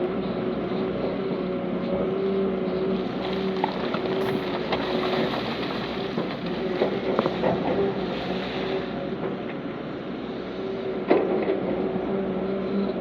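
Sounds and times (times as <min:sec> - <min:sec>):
diesel engine of heavy machinery: 0:00.0 - 0:13.0.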